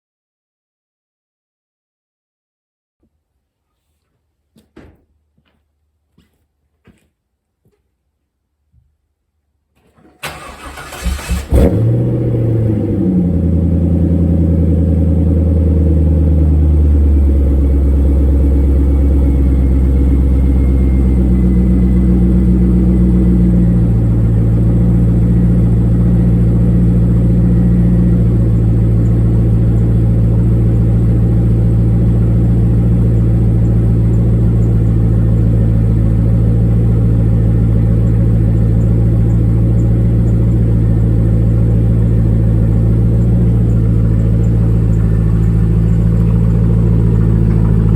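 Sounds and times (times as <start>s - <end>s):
car engine idling: 10.1s - 47.9s.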